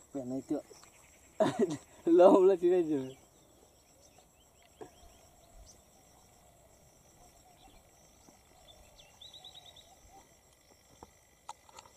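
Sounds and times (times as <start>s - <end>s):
bird chirping: 0.1s - 11.4s
faint high drone: 3.1s - 11.2s.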